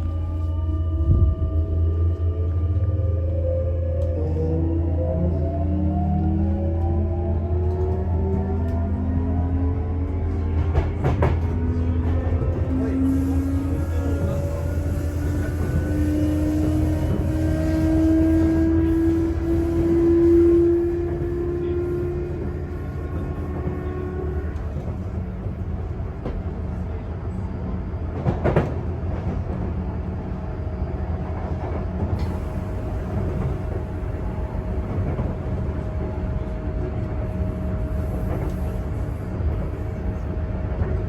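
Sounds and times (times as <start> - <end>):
train wheels rumbling: 10.0 - 41.0.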